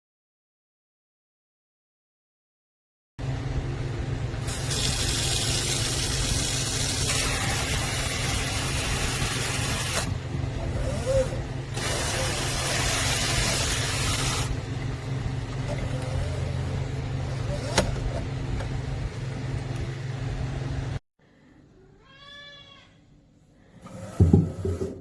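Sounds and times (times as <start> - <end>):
steady low hum: 3.2 - 22.0.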